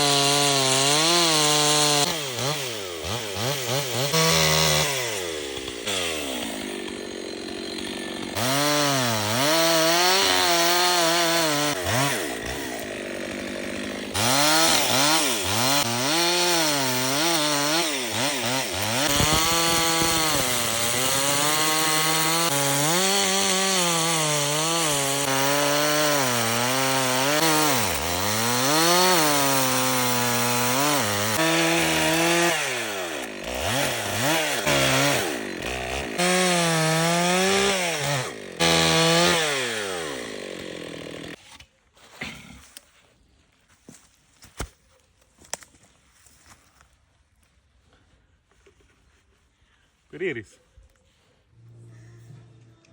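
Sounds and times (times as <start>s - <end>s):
chainsaw cutting wood: 0.0s - 41.7s.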